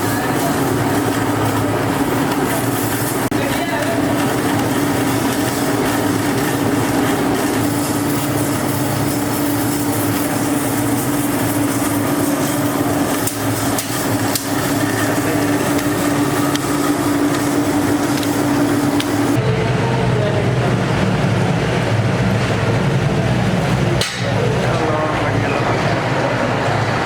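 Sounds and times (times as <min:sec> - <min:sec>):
workshop machinery humming: 0:00.0 - 0:27.0
sharp metal knocks: 0:24.0 - 0:24.4.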